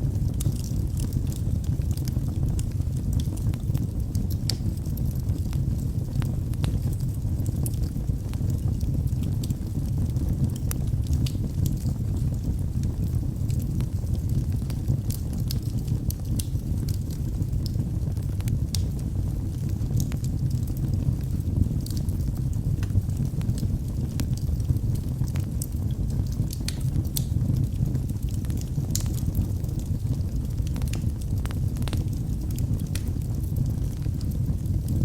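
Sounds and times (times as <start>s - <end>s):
wood fire crackling and popping: 0.0s - 35.0s.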